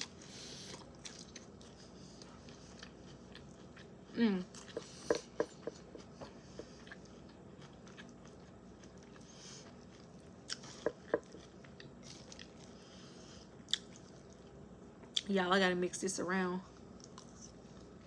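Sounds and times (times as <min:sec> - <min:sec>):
chewing and crunching food: 0:00.0 - 0:15.3, 0:16.7 - 0:18.0.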